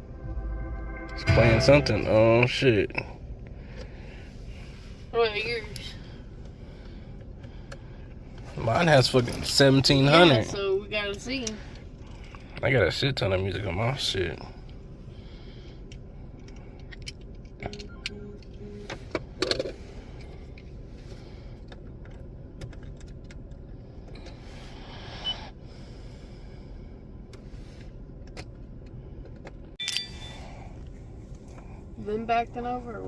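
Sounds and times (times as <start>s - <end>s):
small clicks and rattles: 21.6s - 24.3s.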